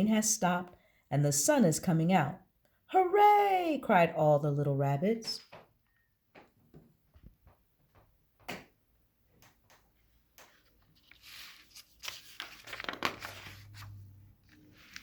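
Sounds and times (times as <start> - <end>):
paper rustling and crinkling: 10.4 - 15.0.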